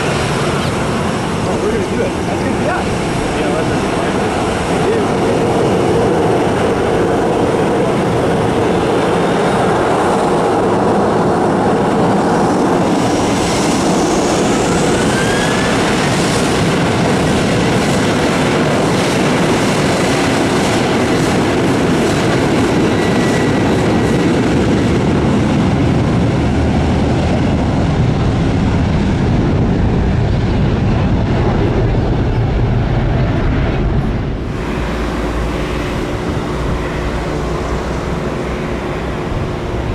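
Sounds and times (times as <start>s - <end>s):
jet engines roaring: 0.0s - 39.9s
faint rising whine: 33.4s - 39.9s.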